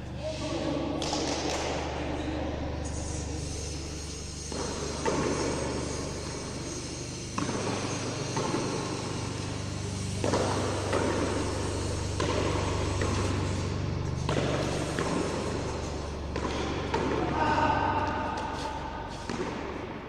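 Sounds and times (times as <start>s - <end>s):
steady low hum: 0.0s - 20.0s
ball striking wall: 7.3s - 9.6s, 10.2s - 20.0s.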